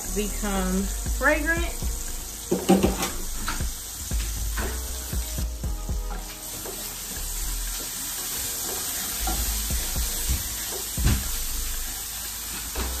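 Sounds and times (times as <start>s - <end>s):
garlic sizzling in hot oil: 0.0s - 13.0s
spatula scraping and knocking pan: 2.4s - 5.3s.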